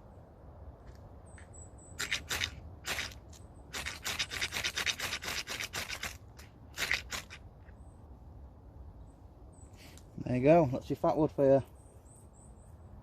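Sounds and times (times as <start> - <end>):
blade scraping tinder: 2.0 - 7.4.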